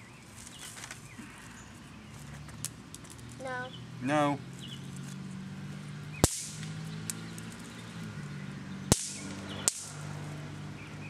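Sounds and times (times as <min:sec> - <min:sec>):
snap pops cracking: 0:06.2 - 0:07.6, 0:08.9 - 0:10.0.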